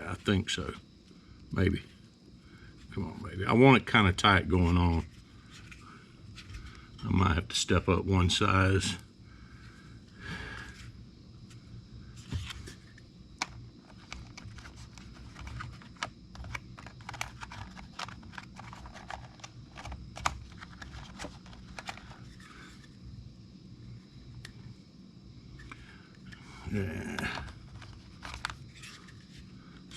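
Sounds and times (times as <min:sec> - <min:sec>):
small plastic parts clicking: 0:13.4 - 0:22.9.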